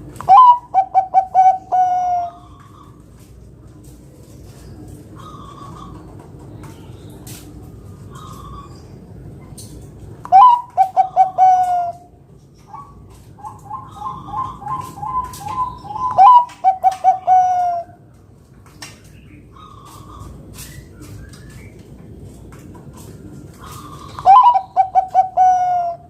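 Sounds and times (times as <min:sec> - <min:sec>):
dove cooing: 0:00.2 - 0:03.0, 0:10.3 - 0:18.0, 0:23.4 - 0:26.0.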